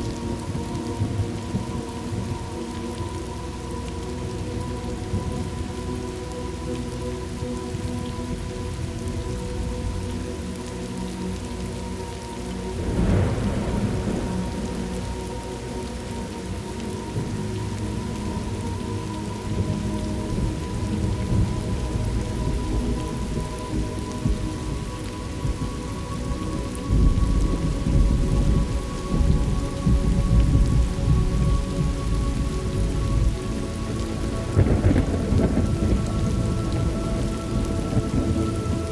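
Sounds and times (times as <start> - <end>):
steady rain: 0.0 - 38.9
rolling thunder: 12.7 - 16.6, 19.5 - 38.9
thunderclap: 12.8 - 15.3, 34.5 - 38.8.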